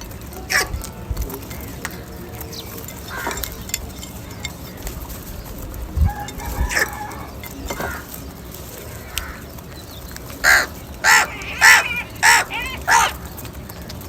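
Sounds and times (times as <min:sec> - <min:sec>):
crow cawing: 0:03.1 - 0:03.4, 0:06.1 - 0:08.1, 0:08.9 - 0:09.5, 0:10.4 - 0:13.3.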